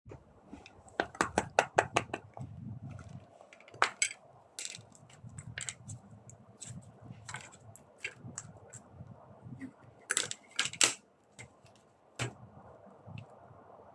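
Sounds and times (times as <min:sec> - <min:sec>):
small hard objects clicking: 0:00.9 - 0:08.9.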